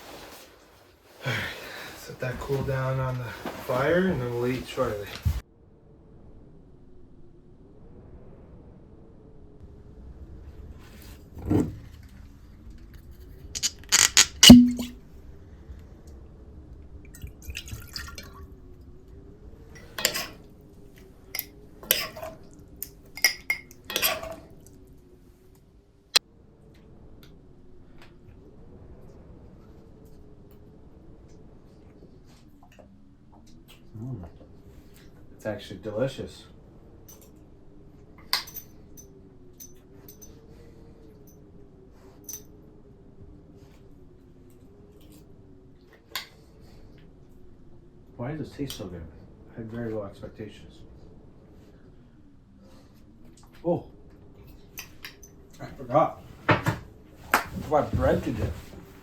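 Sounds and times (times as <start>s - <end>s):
spoon taps and scrapes: 13.6s - 14.9s
liquid sloshing: 13.7s - 15.0s
spoon clinking against bowl: 13.9s - 14.9s.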